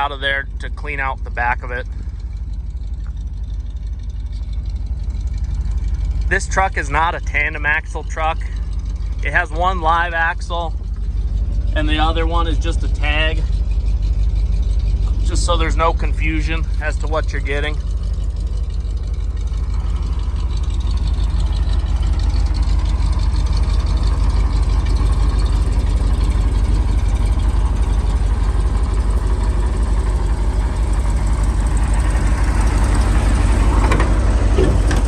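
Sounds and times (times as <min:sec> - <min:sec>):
truck engine idling: 0:00.0 - 0:35.0.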